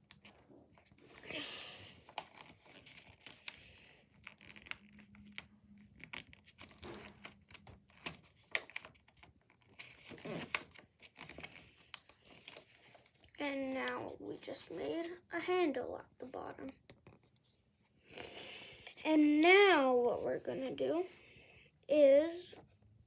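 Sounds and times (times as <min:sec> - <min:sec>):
paper folding and crinkling: 0:00.0 - 0:15.2.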